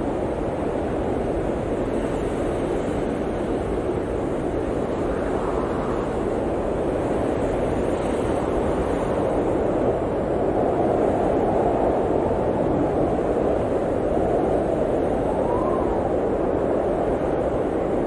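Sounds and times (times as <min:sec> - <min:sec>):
blizzard wind blowing: 0:00.0 - 0:18.0.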